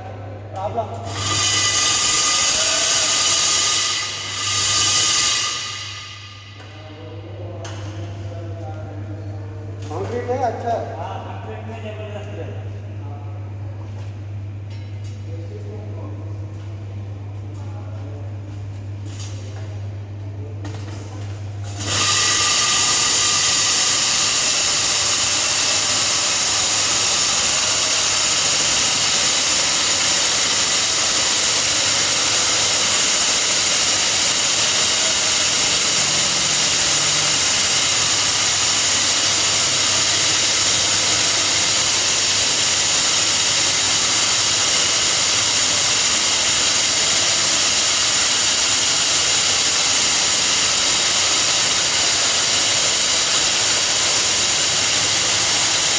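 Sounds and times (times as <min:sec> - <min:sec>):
core drill whining: 0:01.1 - 0:06.2, 0:21.8 - 0:55.9.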